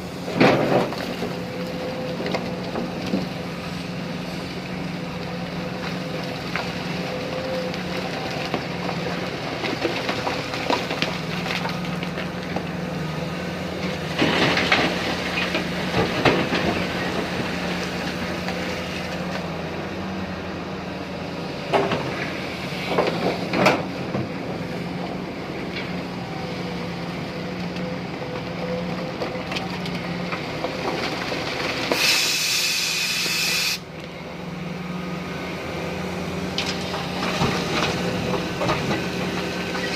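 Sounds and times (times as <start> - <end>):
excavator engine humming: 0.0 - 39.9
loud hydraulic hiss: 32.0 - 33.8.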